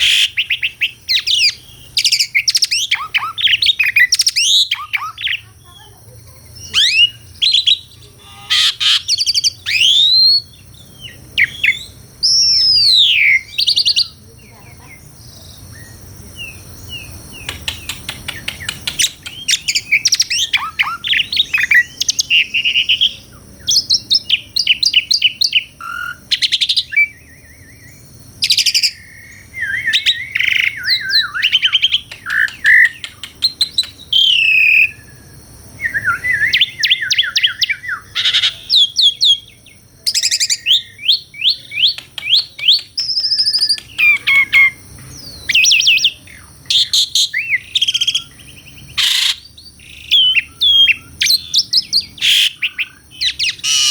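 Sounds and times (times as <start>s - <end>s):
starling singing: 0.0s - 53.9s
rapid clicks: 17.4s - 19.5s.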